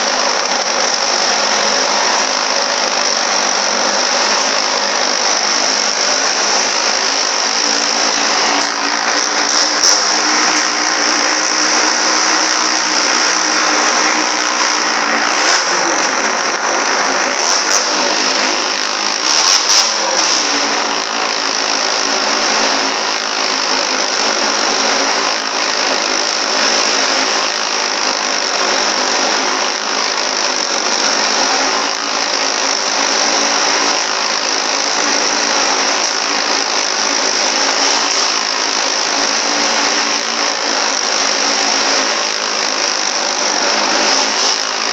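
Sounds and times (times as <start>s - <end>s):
motorcycle engine running hard: 0.0s - 44.9s.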